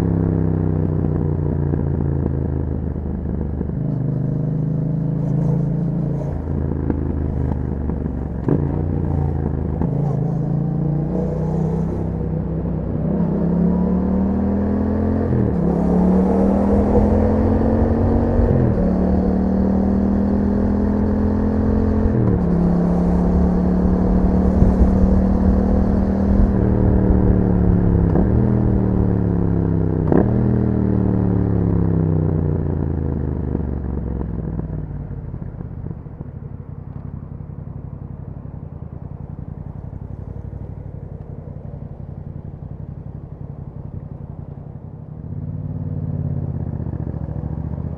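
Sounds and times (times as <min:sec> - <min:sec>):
motorcycle engine accelerating: 0:00.0 - 0:47.9
gear shifts: 0:00.9 - 0:13.7, 0:15.0 - 0:30.6, 0:35.8 - 0:45.6.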